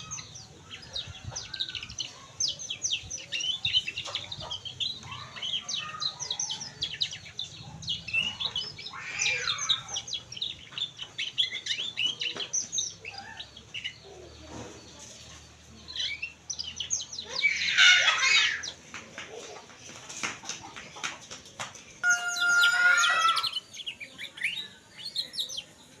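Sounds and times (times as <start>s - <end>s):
canary singing: 0.0s - 14.4s, 22.0s - 26.0s.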